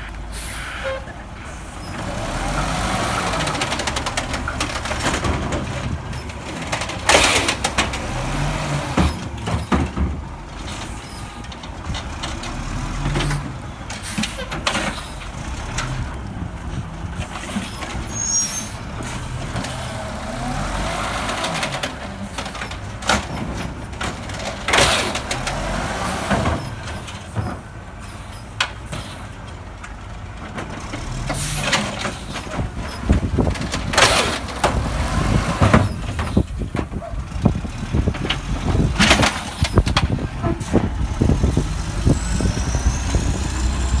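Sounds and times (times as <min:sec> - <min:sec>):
air brake hissing: 0:00.3 - 0:01.9
garbage truck engine revving: 0:01.3 - 0:44.0.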